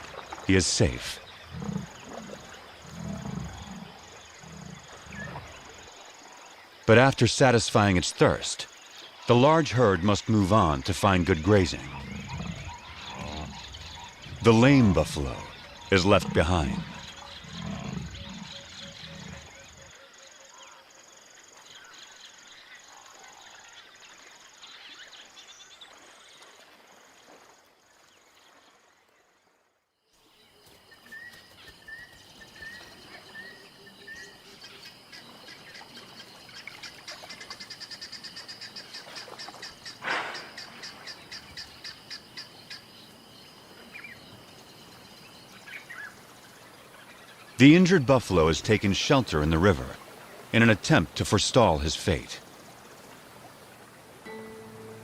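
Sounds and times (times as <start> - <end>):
insects chirping: 0.0 - 55.0
bird calls: 9.9 - 20.8, 30.2 - 48.6.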